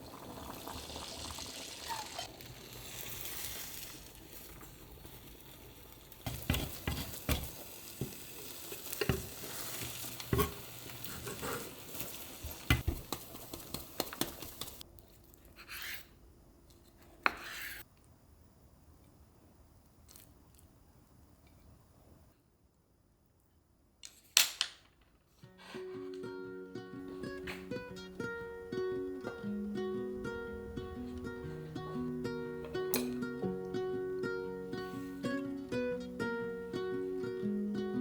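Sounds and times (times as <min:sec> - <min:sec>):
food sizzling in a pan: 0:00.0 - 0:14.8, 0:27.2 - 0:37.4.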